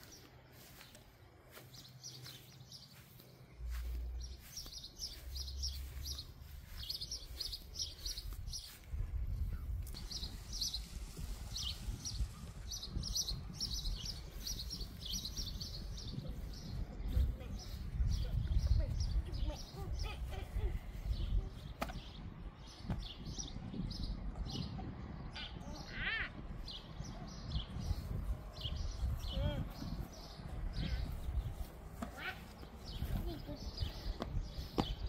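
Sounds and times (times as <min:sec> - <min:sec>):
small songbirds chirping: 0:00.0 - 0:35.0.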